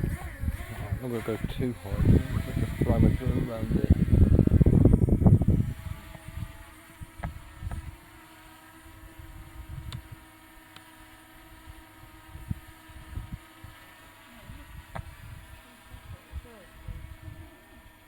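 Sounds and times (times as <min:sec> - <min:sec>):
wind buffeting microphone: 0:00.0 - 0:08.1, 0:09.0 - 0:10.3, 0:11.6 - 0:13.8, 0:14.4 - 0:17.6
drone propellers humming: 0:00.0 - 0:18.0.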